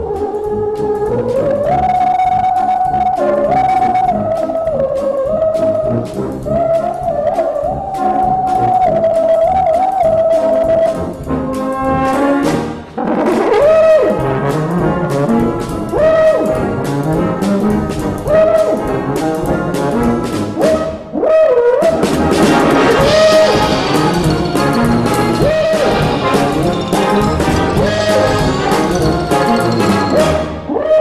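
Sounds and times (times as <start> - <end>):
brass band chords: 22.0 - 30.7.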